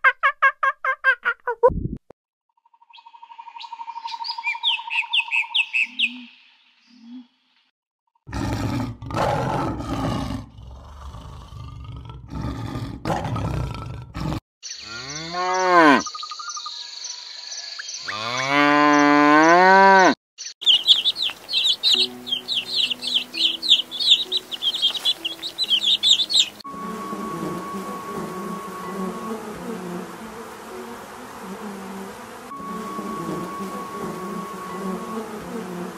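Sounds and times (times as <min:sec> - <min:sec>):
cow mooing: 0:08.3 - 0:16.0, 0:18.1 - 0:20.2
high bird chirps: 0:14.6 - 0:19.1, 0:20.4 - 0:26.6
honeybees buzzing: 0:18.1 - 0:35.9.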